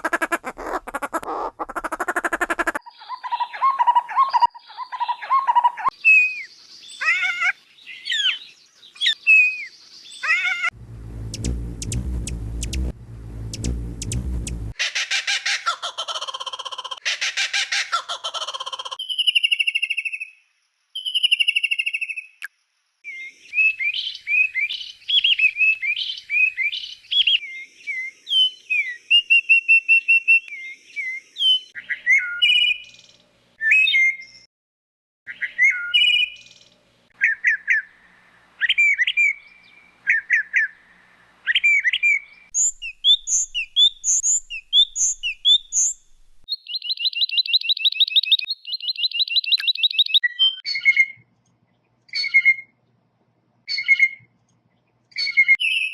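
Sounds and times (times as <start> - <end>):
fast buzzy bird trill: 0.0 - 2.8, 10.9 - 14.8, 42.6 - 46.4
songbirds singing: 0.0 - 14.8, 21.0 - 34.5, 35.3 - 53.0, 53.6 - 55.9.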